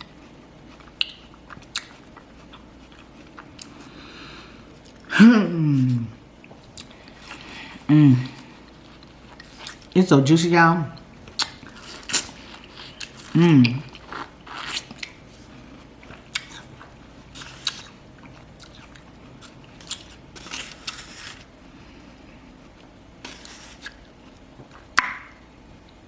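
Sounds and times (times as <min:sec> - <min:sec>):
person chewing watermelon: 0:00.0 - 0:10.0, 0:10.9 - 0:26.0.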